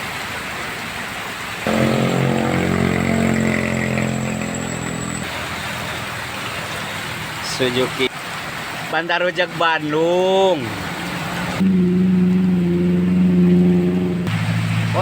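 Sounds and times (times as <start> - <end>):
passing vehicle engine: 1.6 - 8.2, 10.4 - 15.0.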